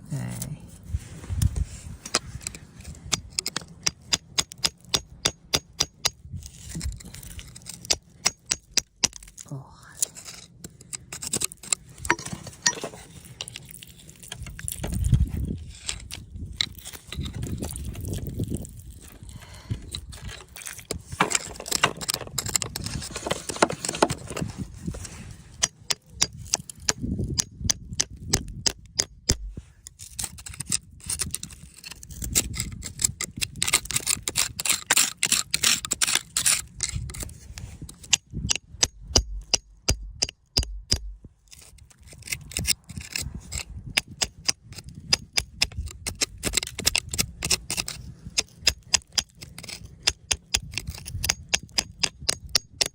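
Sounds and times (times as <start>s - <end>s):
tools scraping rock: 0.0s - 52.9s
tools clicking and tapping on rock: 2.0s - 24.5s, 25.6s - 52.9s.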